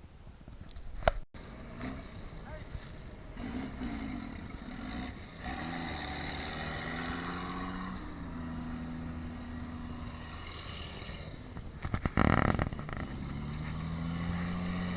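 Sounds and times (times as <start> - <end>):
tractor engine at high revs: 1.4 - 14.9.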